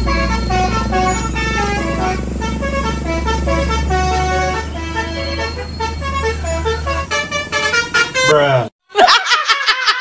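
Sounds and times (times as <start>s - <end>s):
steady low hum: 0.0s - 8.0s
bus horn playing melody: 0.0s - 8.4s.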